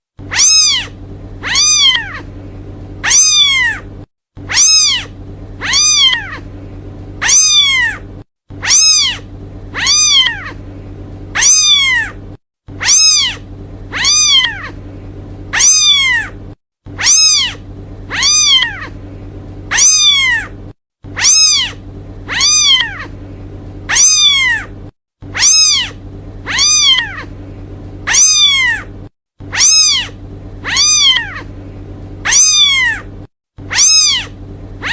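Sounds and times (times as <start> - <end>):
low hum: 0.2 - 34.9
kitten meowing: 0.3 - 2.3, 3.0 - 3.9, 4.5 - 6.5, 7.2 - 10.6, 11.4 - 12.2, 12.8 - 14.8, 15.5 - 16.4, 17.0 - 19.0, 19.7 - 20.5, 21.2 - 23.2, 23.9 - 24.7, 25.3 - 27.3, 28.1 - 28.9, 29.5 - 31.5, 32.2 - 34.9.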